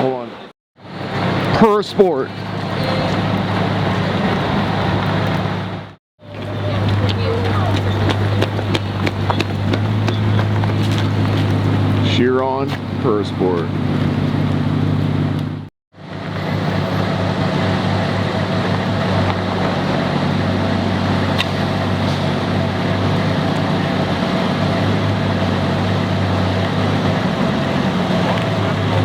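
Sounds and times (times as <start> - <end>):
car engine idling: 1.0 - 15.7, 17.5 - 29.0.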